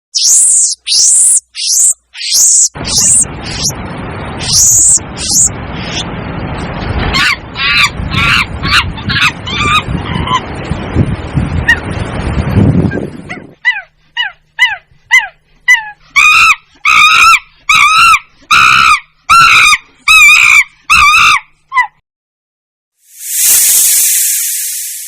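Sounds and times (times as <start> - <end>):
animal wavering high calls: 0.2 - 3.7, 4.4 - 5.5, 13.6 - 21.9
animal yelping: 0.2 - 3.7, 4.4 - 6.0, 7.1 - 10.5, 12.9 - 22.0.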